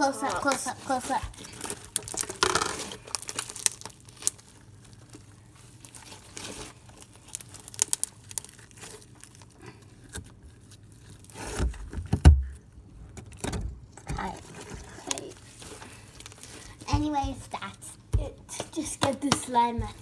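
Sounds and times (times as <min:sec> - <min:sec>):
slime crackling and popping: 0:00.2 - 0:11.4.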